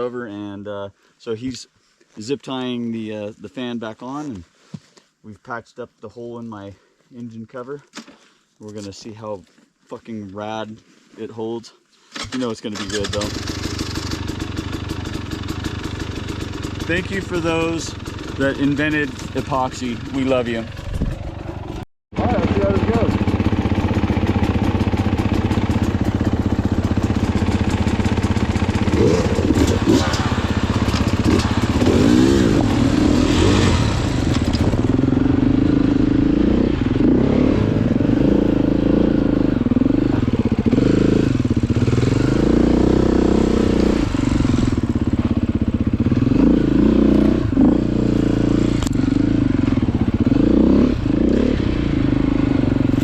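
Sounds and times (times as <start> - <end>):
dirt bike engine revving: 12.8 - 53.0.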